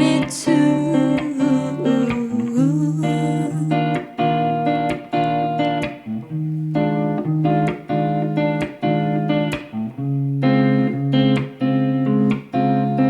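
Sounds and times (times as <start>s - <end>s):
guitar strumming chords: 0.0s - 13.0s.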